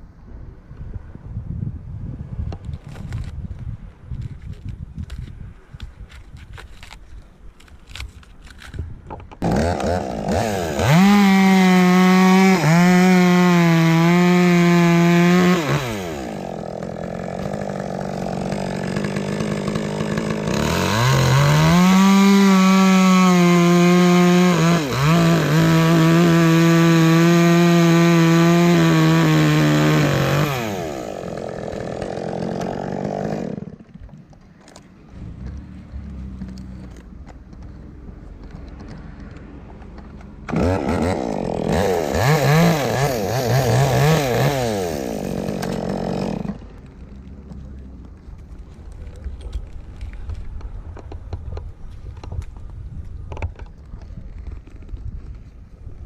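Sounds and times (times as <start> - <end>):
chainsaw cutting wood: 9.4 - 37.7, 38.4 - 47.8.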